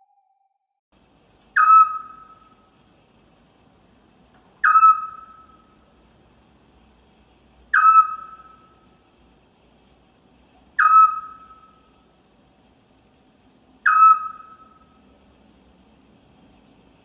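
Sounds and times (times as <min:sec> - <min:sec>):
owl whistled call: 0:01.6 - 0:02.6, 0:04.6 - 0:05.7, 0:07.7 - 0:08.8, 0:10.8 - 0:11.9, 0:13.8 - 0:15.0.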